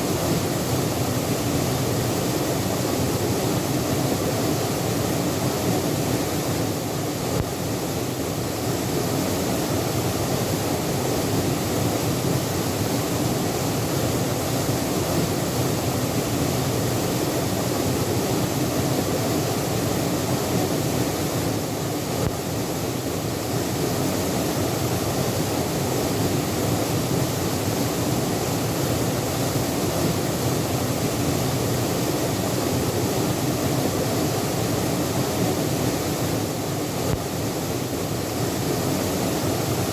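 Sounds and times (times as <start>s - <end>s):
waterfall splashing: 0.0s - 39.9s.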